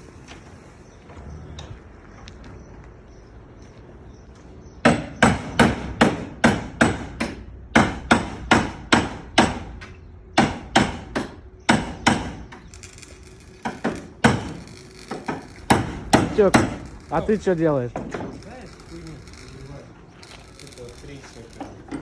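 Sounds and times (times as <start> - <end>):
hammer blows ringing: 10.4 - 22.0.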